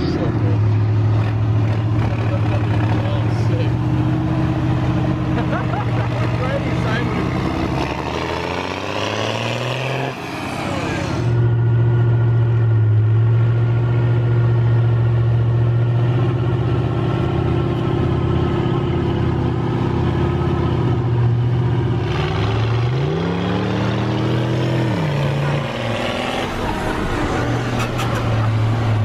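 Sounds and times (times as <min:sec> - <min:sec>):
truck engine running and revving: 0:00.0 - 0:29.0.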